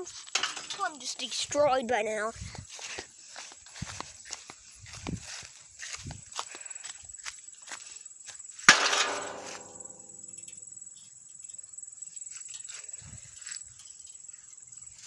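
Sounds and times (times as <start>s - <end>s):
board striking metal plate: 8.7s - 10.2s
insect chirring: 9.4s - 15.0s.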